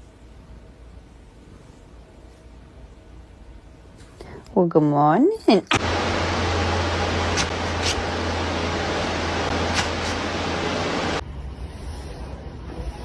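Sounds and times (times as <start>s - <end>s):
background noise: 0.0s - 5.8s
low hum: 5.7s - 11.4s
steady rushing noise: 5.8s - 11.2s.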